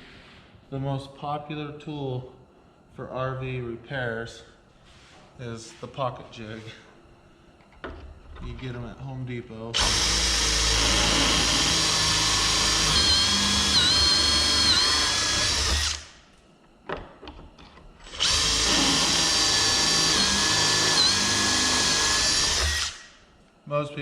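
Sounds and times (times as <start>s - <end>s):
power drill whining into wood: 9.8s - 16.1s, 18.0s - 23.1s.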